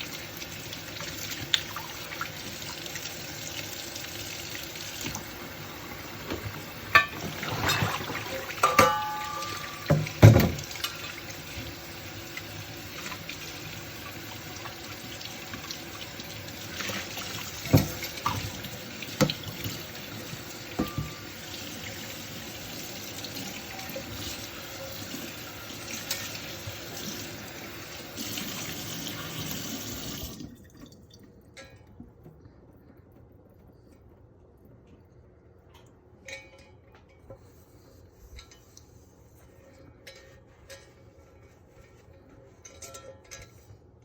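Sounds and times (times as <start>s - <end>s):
tap water running into sink: 0.0s - 31.1s
dishes clinking: 6.2s - 11.0s, 20.7s - 21.5s.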